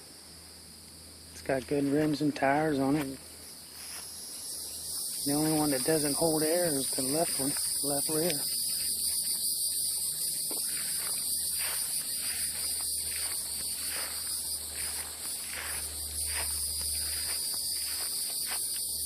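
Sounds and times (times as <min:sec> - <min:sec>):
insects chirring: 0:00.0 - 0:19.0
low steady hum: 0:00.0 - 0:19.0
soft rustling: 0:03.0 - 0:04.2, 0:06.9 - 0:19.0.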